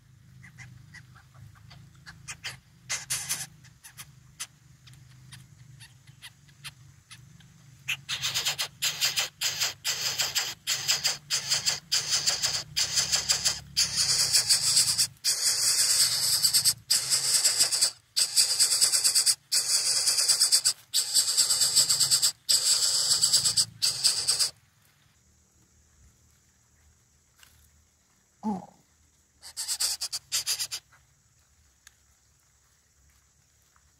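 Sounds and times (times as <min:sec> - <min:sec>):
bird chick hissing begging calls: 0:01.6 - 0:04.1, 0:07.9 - 0:24.6, 0:29.4 - 0:30.8.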